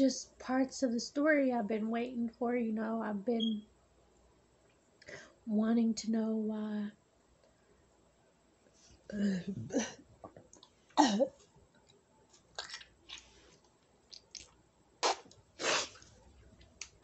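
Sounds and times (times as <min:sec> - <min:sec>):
person chewing food: 0:11.8 - 0:17.0.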